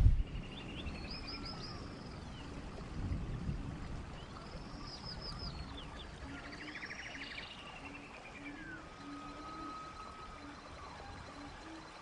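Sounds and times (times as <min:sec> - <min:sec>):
faint low rumble: 0:00.0 - 0:11.6
bird singing high arching notes: 0:00.2 - 0:02.5, 0:04.2 - 0:12.0.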